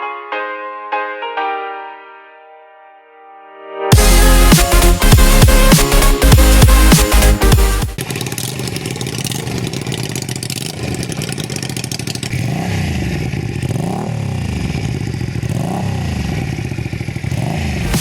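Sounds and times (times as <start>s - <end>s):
motorcycle engine idling and revving: 3.9s - 18.0s.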